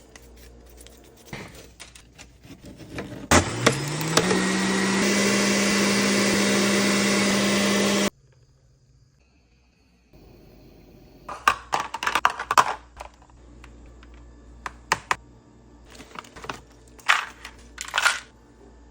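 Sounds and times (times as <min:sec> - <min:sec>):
kitchen items clattering: 0:00.0 - 0:05.5, 0:11.3 - 0:15.2, 0:15.9 - 0:18.4.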